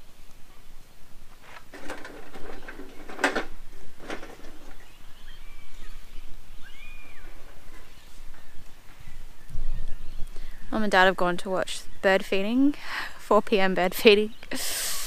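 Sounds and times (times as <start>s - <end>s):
harsh bird calls: 4.5s - 10.8s
thin whistled bird notes: 4.7s - 10.8s.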